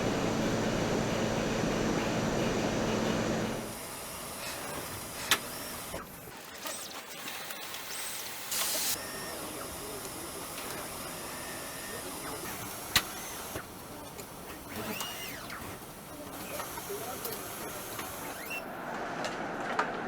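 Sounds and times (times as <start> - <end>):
machine hum: 0.0 - 3.9.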